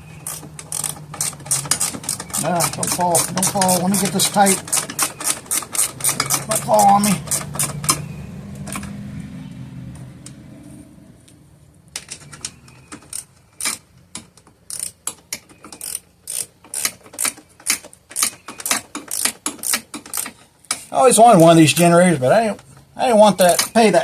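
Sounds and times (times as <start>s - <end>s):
ratchet wrench clicking: 0.2s - 8.1s, 12.4s - 20.8s.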